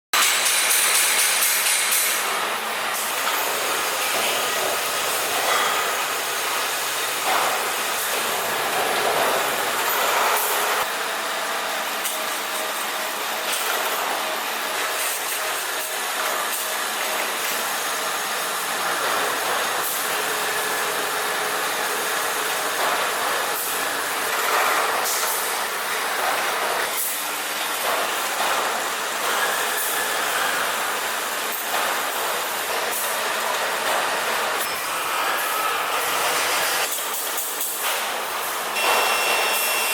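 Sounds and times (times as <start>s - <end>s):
machinery clatter and scraping: 7.1s - 10.9s.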